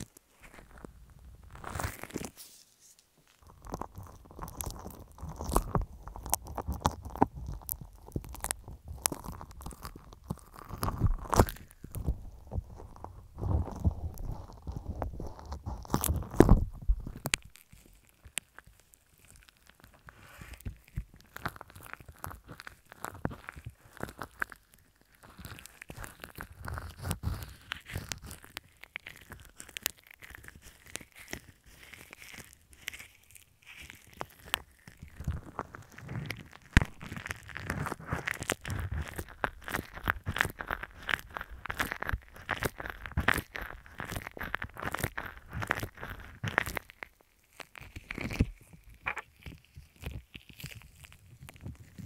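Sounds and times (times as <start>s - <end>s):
slime squishing with crackling pops: 0.0s - 2.4s, 3.0s - 52.0s.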